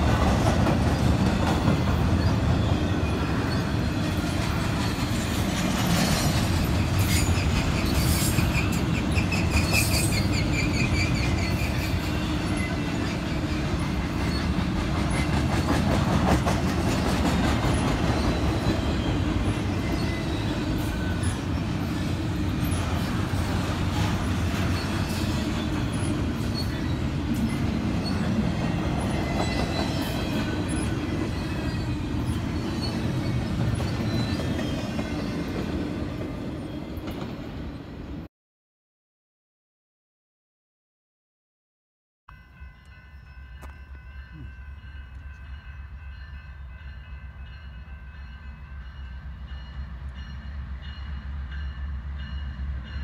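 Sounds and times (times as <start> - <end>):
freight train wheels rumbling and rattling: 0.0 - 37.7
wheels squealing: 2.1 - 15.8, 29.0 - 35.5.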